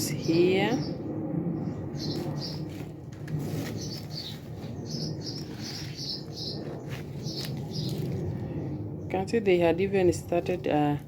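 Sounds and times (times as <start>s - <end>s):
small bird chirping: 2.0s - 2.8s, 3.6s - 8.3s.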